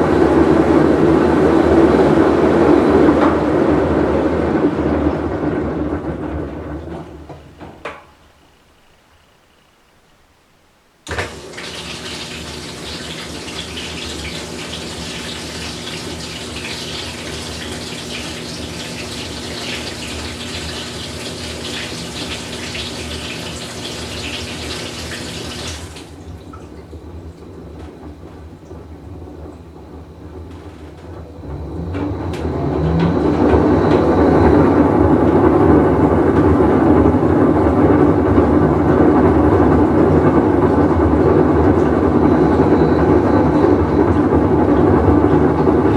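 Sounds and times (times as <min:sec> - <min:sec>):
washing machine hum: 0:00.0 - 0:45.9
washing machine rumble: 0:00.0 - 0:45.9
water inflow hiss: 0:07.7 - 0:26.5.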